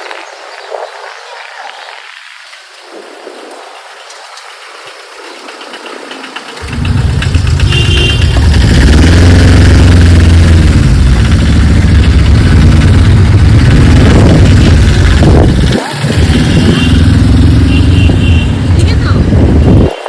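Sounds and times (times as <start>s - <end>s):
motorcycle engine revving: 6.0s - 19.9s.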